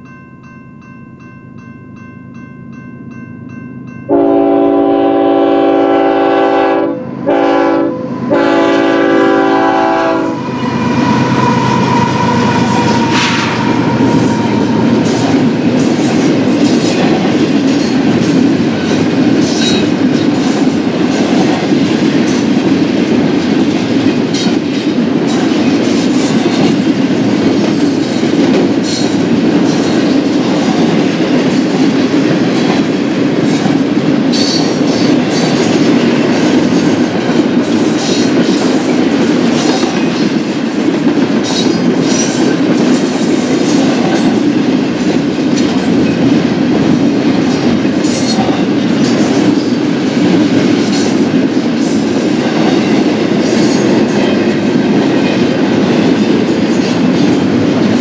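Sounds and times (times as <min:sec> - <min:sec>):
locomotive air horn: 0:04.1 - 0:15.3
freight cars rolling past: 0:08.0 - 0:16.8.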